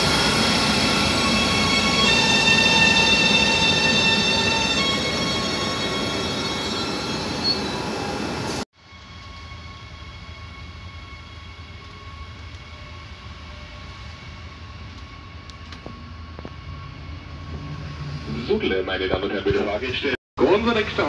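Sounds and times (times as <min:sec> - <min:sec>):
electric locomotive whining: 0:00.0 - 0:21.0
rumble inside train carriage: 0:11.6 - 0:21.0.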